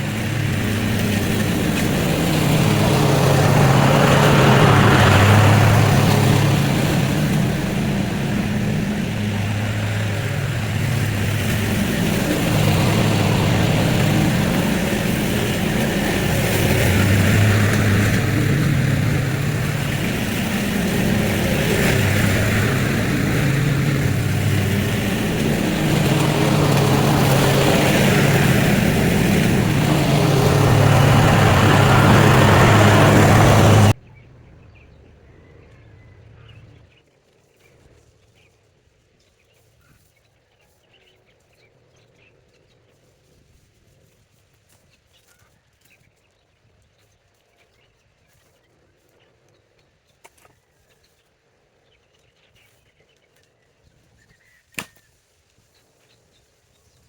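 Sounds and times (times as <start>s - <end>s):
small gasoline engine running: 0.0s - 34.0s.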